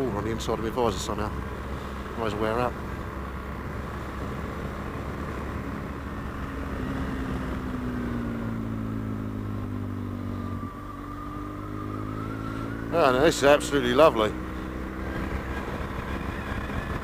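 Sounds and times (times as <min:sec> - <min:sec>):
motorcycle engine running: 0:00.0 - 0:17.0
wind noise: 0:15.1 - 0:17.0.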